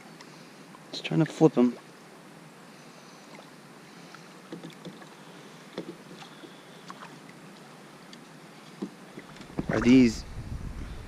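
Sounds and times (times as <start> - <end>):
water lapping: 2.6 - 10.2.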